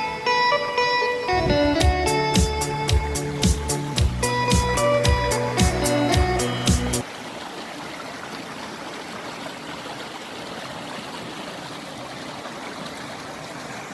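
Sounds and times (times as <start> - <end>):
stream water running: 0.0 - 13.9
music with steady beat: 0.2 - 7.0.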